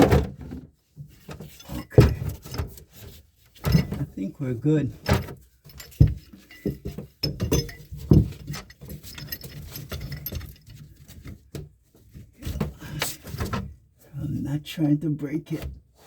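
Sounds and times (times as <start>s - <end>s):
wrench and pipe fittings clinking: 5.0s - 10.8s.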